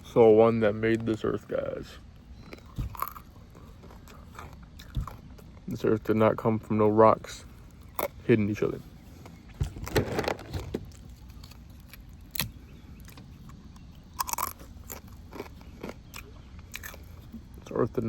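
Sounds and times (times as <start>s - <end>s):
person chewing crunchy food: 1.9s - 5.8s, 7.4s - 8.2s, 9.1s - 17.8s.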